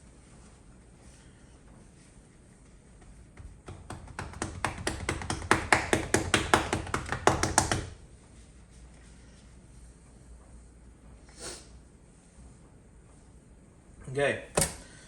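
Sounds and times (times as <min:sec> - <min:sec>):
paper towel patting taps: 0:02.9 - 0:08.0.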